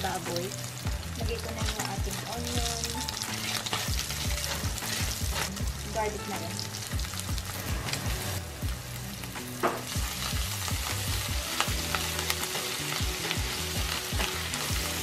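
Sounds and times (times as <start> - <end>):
background music with low beat: 0.0 - 15.0
meat sizzling in a pan: 0.0 - 15.0.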